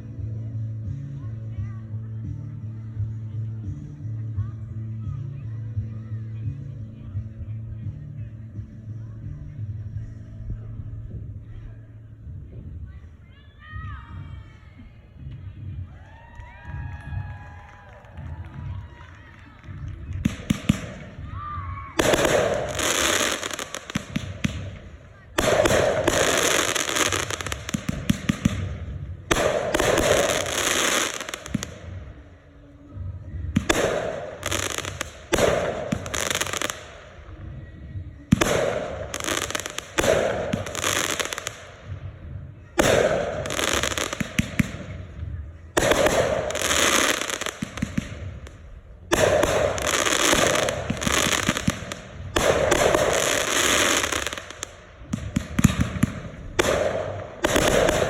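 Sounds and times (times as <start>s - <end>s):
fireworks crackling: 15.3s - 32.8s, 33.4s - 58.0s
fireworks bursting: 18.3s - 58.0s.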